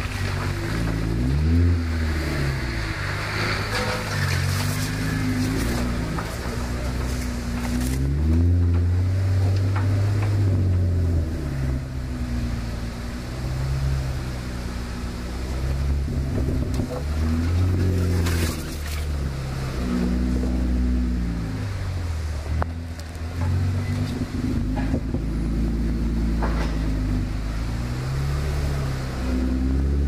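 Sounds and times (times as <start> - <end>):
off-road vehicle engine rumble: 0.0 - 30.0
knocks and rattles: 23.3 - 25.3.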